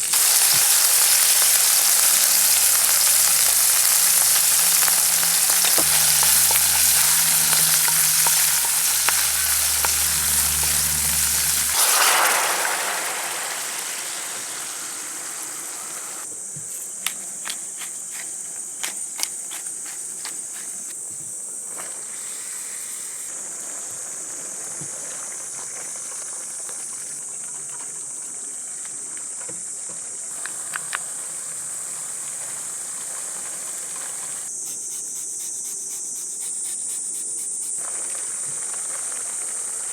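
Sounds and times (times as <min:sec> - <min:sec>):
food sizzling in a frying pan: 0:00.0 - 0:16.3, 0:37.8 - 0:39.9
high insect drone: 0:00.0 - 0:27.4, 0:29.2 - 0:39.9.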